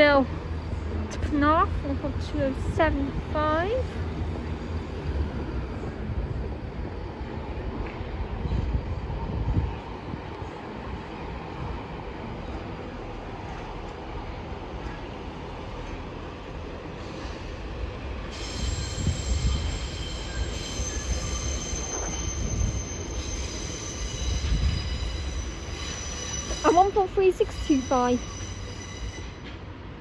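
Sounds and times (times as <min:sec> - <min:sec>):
train rumbling past: 0:00.0 - 0:30.0
train wheels squealing on rails: 0:16.8 - 0:30.0.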